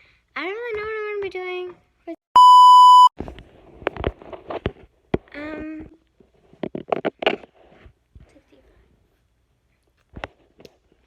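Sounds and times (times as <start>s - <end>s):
loud high beep: 2.4s - 3.1s.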